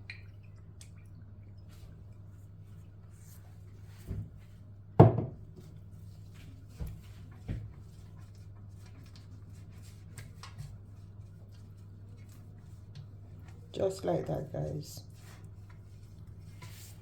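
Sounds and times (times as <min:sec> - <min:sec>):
kitchen handling knocks: 0:05.0 - 0:05.4.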